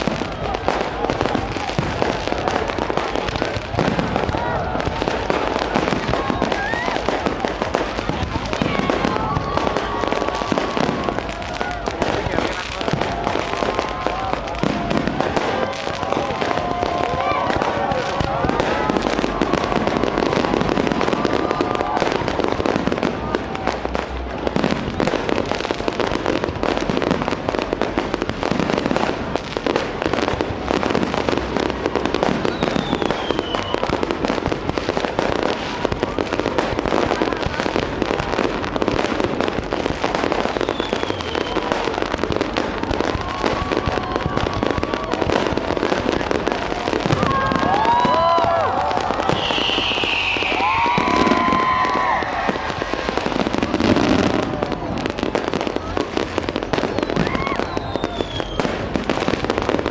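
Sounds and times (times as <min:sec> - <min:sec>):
fireworks bursting and crackling: 0:00.0 - 0:59.9
people's voices: 0:00.0 - 0:59.9.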